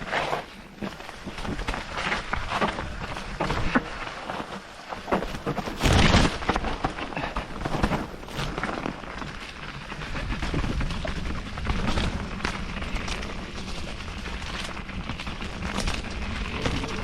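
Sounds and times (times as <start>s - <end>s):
bike rattling over rough ground: 0.0s - 17.0s
wind rumble on microphone: 0.0s - 17.0s.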